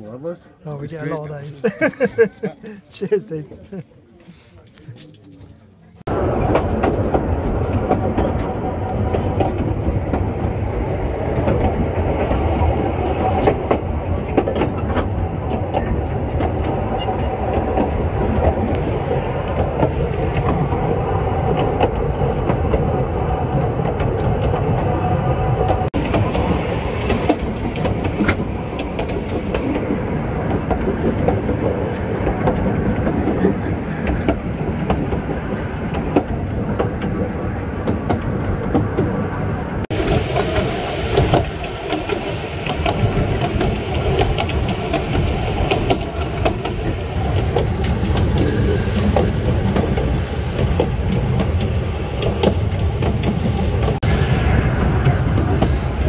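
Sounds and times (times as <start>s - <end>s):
wheels rumbling on rail: 4.9s - 56.0s.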